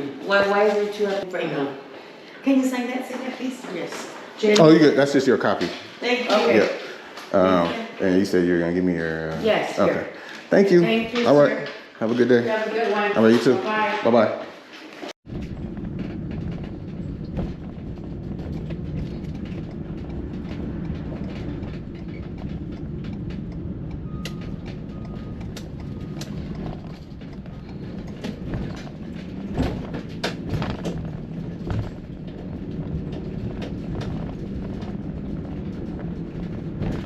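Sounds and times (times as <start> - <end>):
van engine rumble: 15.2 - 37.0.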